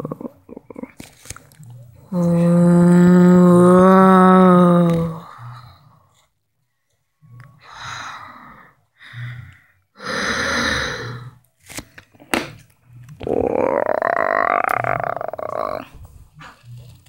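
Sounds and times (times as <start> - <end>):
breathy sighs and gasps: 2.1 - 6.0, 7.4 - 11.4.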